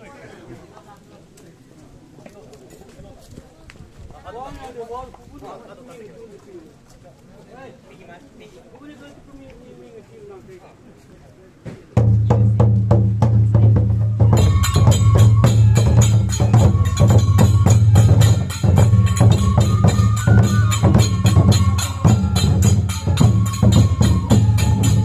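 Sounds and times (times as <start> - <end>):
rapid clacking percussion: 12.0 - 25.0
high held melody line: 14.2 - 25.0.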